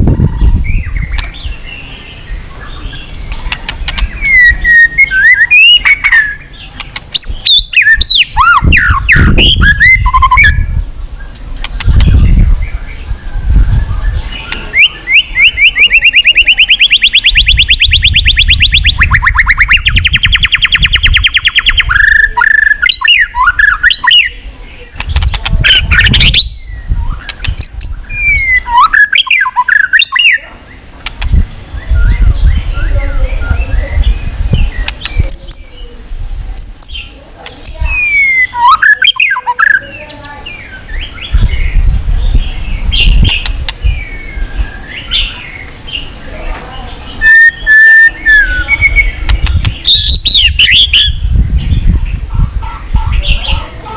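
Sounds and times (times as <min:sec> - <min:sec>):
bird trilling and whistling: 0:00.0 - 0:30.8, 0:31.7 - 0:35.8, 0:36.6 - 0:45.4, 0:47.2 - 0:51.9.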